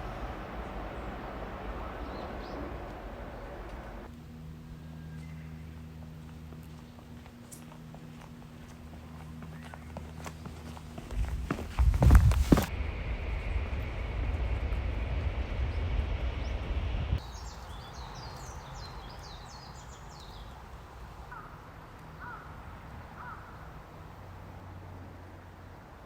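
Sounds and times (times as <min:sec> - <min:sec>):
bird cawing: 0:00.0 - 0:04.1, 0:21.3 - 0:21.6, 0:22.2 - 0:23.8
loud low rumble: 0:00.0 - 0:05.7, 0:11.2 - 0:18.9
birds chirping: 0:00.0 - 0:12.7, 0:14.6 - 0:24.2.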